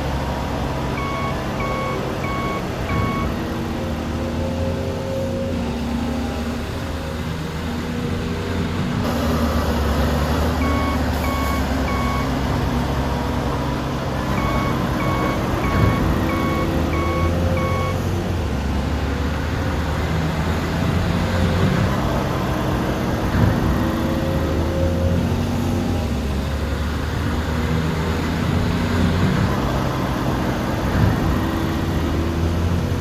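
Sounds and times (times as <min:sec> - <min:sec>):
diesel engine running: 0:00.0 - 0:33.0
reversing alarm beeping: 0:00.9 - 0:03.5, 0:10.6 - 0:12.4, 0:14.3 - 0:18.1.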